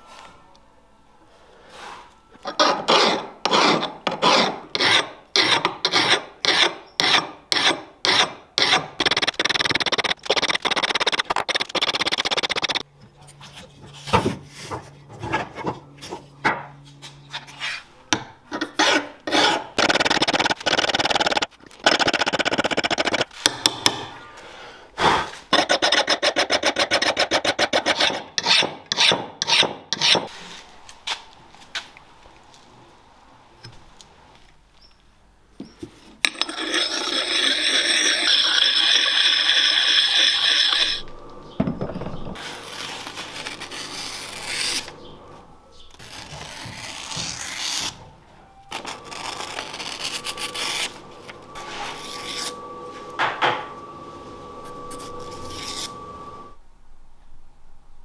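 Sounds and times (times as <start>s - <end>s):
rasp filing strokes: 2.5s - 12.8s, 18.6s - 23.6s, 25.5s - 30.4s, 36.3s - 41.0s, 48.8s - 52.6s.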